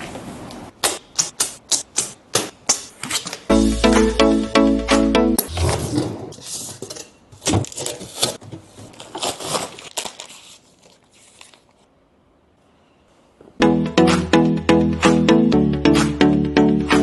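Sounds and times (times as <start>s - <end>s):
crinkling and rustling: 5.4s - 11.9s.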